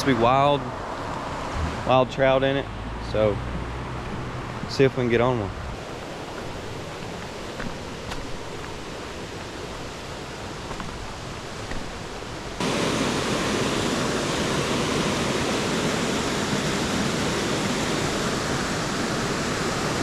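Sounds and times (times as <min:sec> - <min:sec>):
river rushing over rocks: 0:04.0 - 0:20.0.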